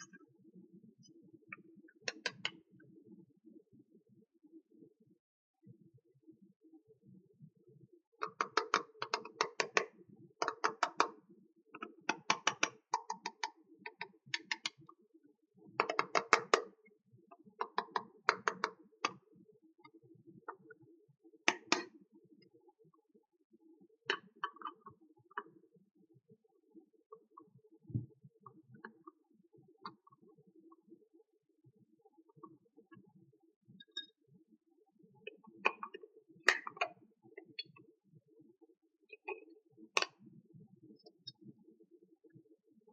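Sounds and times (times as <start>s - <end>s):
plastic toy pieces clicking: 12.1s - 13.4s.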